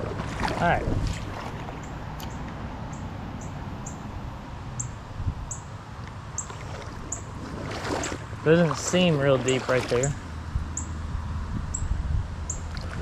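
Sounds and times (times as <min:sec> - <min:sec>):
small bird chirping: 0:04.8 - 0:05.7, 0:06.4 - 0:07.3.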